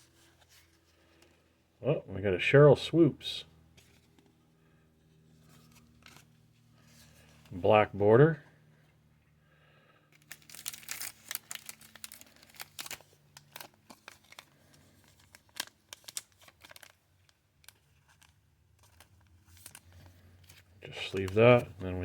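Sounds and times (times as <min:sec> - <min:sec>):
plastic sleeve crinkling: 0:10.1 - 0:22.0.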